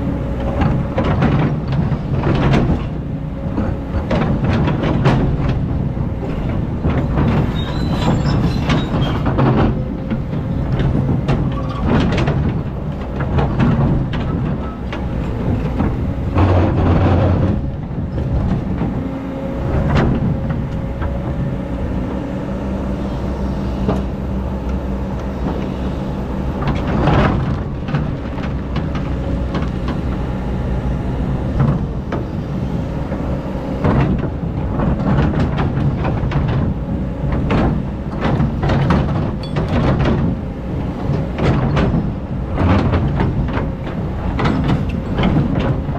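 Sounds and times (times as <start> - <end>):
diesel engine running: 0.0 - 45.9
bucket clanking and scraping: 6.3 - 19.0.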